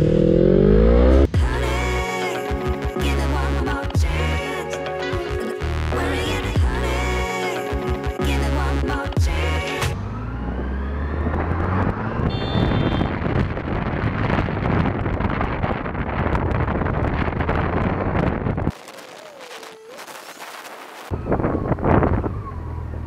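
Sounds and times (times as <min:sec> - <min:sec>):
motorcycle engine accelerating: 0:00.0 - 0:01.7, 0:09.8 - 0:18.7
wind rush over microphone: 0:11.3 - 0:19.4, 0:20.0 - 0:22.6.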